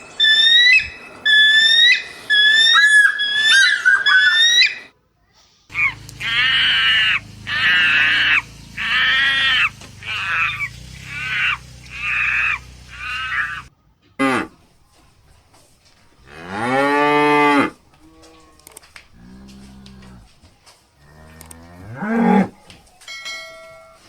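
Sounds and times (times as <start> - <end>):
high-pitched animal calls: 0.0 - 4.9, 5.7 - 14.6
faint low animal calls: 0.2 - 4.9, 5.7 - 15.4, 16.0 - 22.9
cow mooing: 5.7 - 14.6, 16.2 - 20.4, 21.0 - 22.6.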